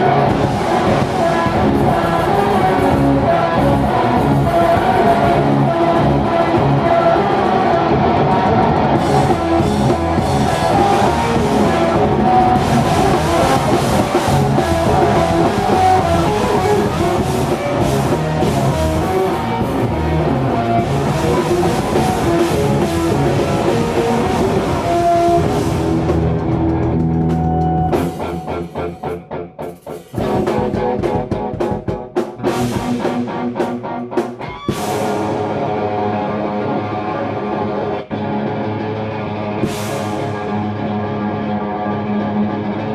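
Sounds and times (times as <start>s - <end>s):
drum kit: 0.0s - 36.9s, 39.6s - 40.8s
distorted electric guitar: 0.0s - 42.9s.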